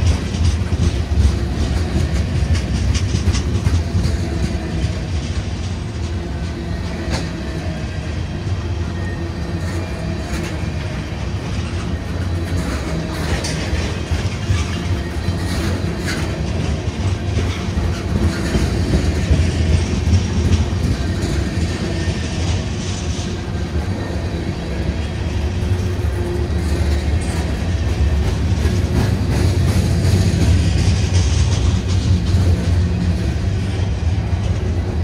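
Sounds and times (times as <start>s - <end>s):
wheel clicks over rail joints: 0.0s - 7.4s
diesel train rumble: 0.0s - 35.0s.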